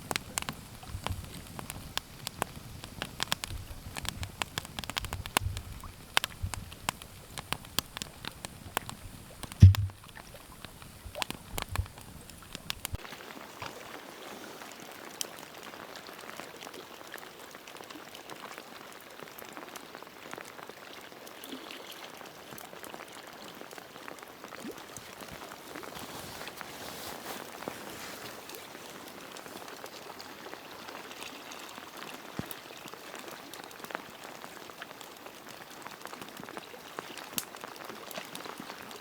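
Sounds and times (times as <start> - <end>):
light rain falling: 0.0 - 39.0
sharp clicks: 0.1 - 13.0
low thumps: 9.5 - 10.1.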